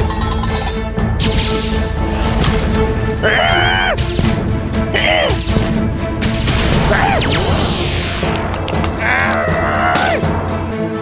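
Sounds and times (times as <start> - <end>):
cartoon background music: 0.0 - 11.0.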